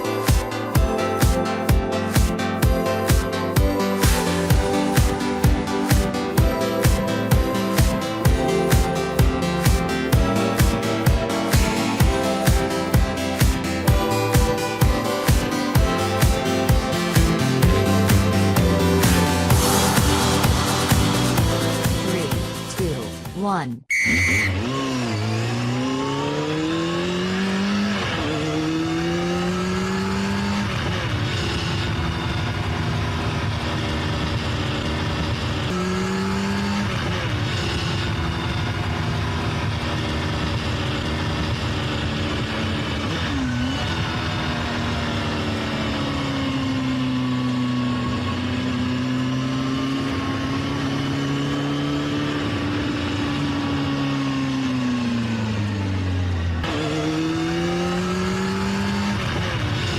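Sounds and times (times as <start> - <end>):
motorbike engine revving: 24.2 - 59.9.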